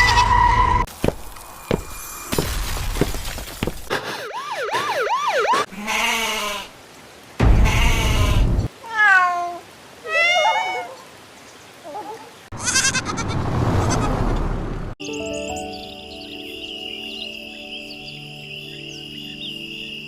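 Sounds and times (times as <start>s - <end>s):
goat kid bleating: 5.7s - 6.7s, 7.6s - 8.4s, 12.5s - 13.3s
cat meows: 7.7s - 11.0s.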